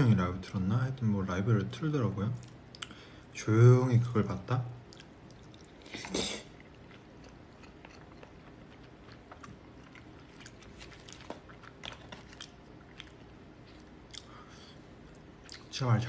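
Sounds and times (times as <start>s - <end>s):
person chewing noodles: 2.4s - 3.2s, 4.8s - 15.7s.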